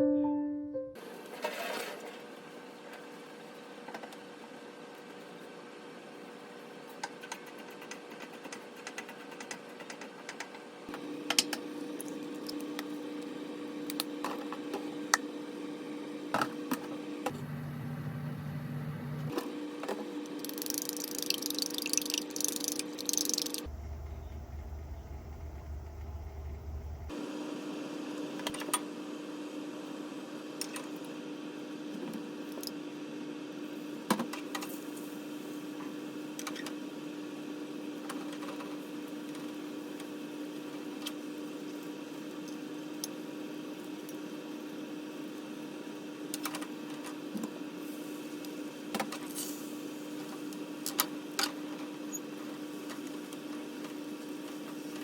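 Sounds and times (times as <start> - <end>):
kitchen appliance humming: 17.2 - 19.3, 20.3 - 27.1.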